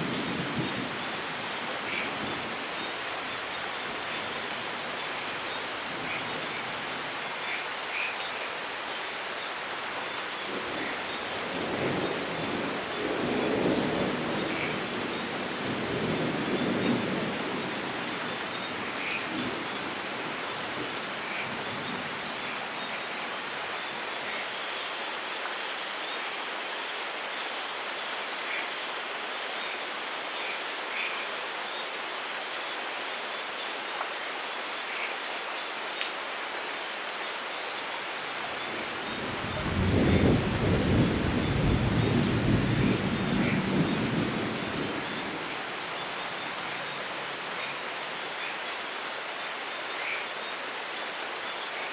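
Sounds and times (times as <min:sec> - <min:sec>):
steady rain falling: 0:00.0 - 0:51.9
thunder rumbling: 0:38.5 - 0:45.6.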